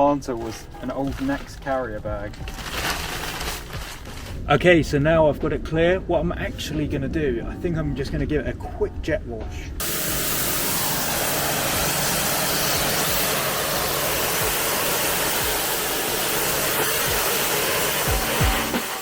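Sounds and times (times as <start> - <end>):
pressure washer motor humming: 9.8 - 19.0
water jet hissing: 9.8 - 19.0.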